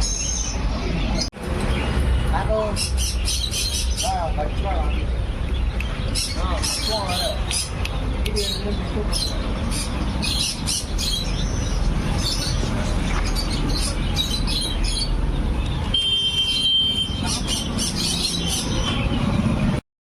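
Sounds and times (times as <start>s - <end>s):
cockatoo chirping calls: 16.4s - 19.0s.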